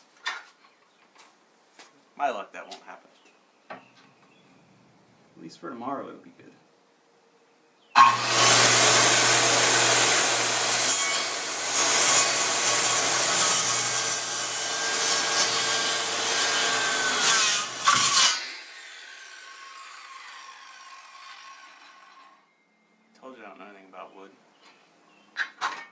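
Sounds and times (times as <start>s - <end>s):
power saw cutting wood: 8.0s - 22.4s.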